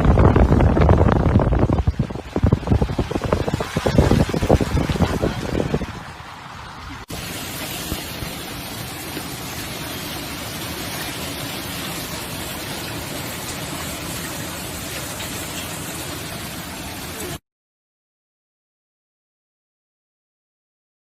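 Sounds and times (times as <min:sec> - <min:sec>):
hail clattering: 0:07.1 - 0:17.4.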